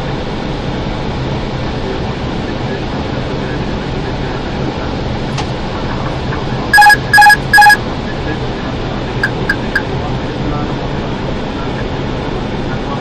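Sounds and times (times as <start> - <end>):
airflow and engine noise: 0.0 - 6.7, 7.8 - 13.0
electronic alert beeps: 6.8 - 7.8, 9.2 - 9.8.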